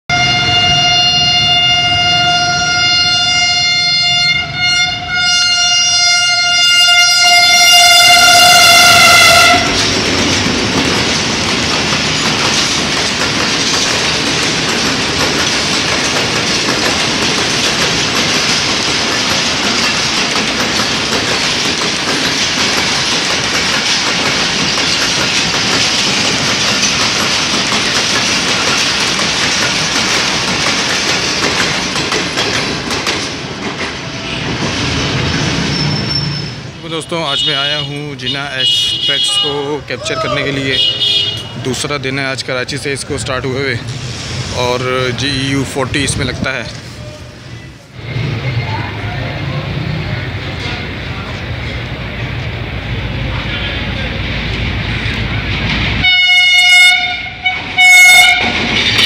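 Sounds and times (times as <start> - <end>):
diesel locomotive horn blast: 0.1 - 9.9, 37.0 - 39.8, 40.6 - 41.6, 56.0 - 58.6
train passing at speed: 0.1 - 59.0.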